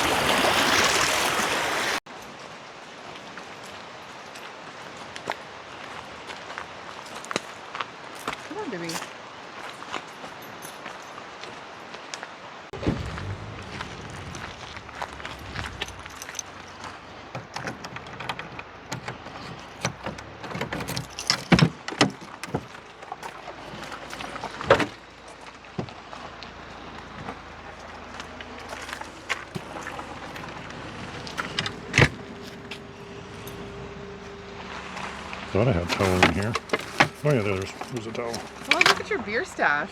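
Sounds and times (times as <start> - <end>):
sharp thumps: 12.8 - 19.3
gear clattering and clicking: 12.8 - 25.6, 27.0 - 39.4.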